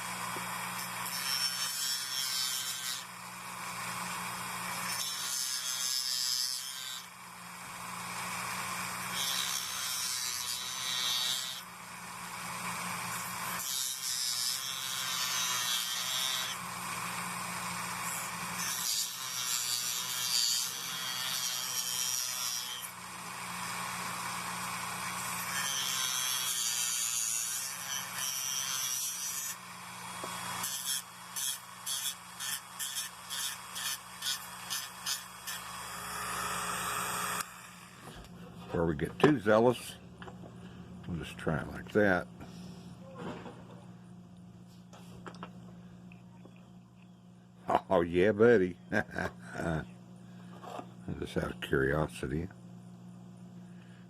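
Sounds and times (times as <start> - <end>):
steady low hum: 37.4 - 54.0.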